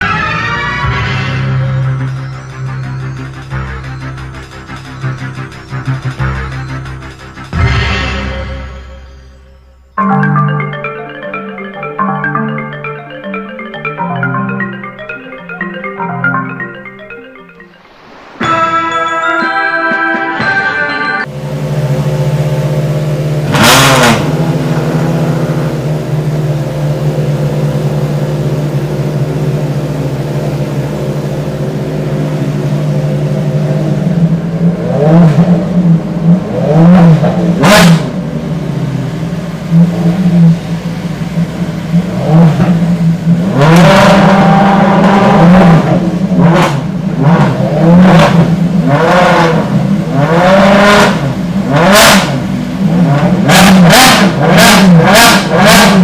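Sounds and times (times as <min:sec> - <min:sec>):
car engine idling and revving: 0:00.0 - 0:10.0, 0:21.2 - 0:56.0.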